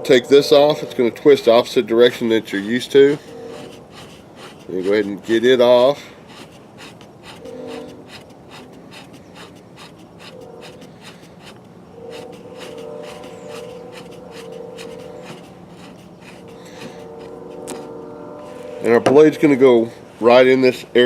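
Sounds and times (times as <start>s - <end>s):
steady droning tone: 0.0s - 9.6s, 10.2s - 20.0s
scraping and clicking handling noise: 2.7s - 19.2s.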